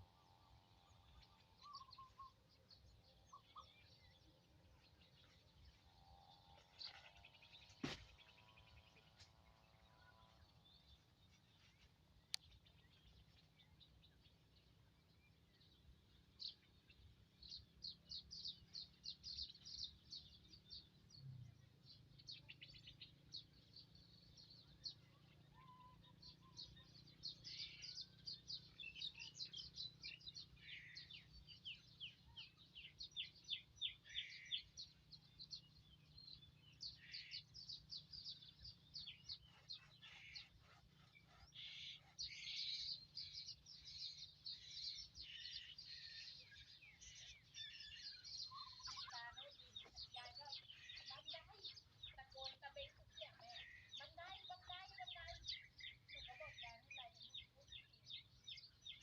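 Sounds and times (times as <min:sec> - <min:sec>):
small birds trilling: 0:11.8 - 0:59.0.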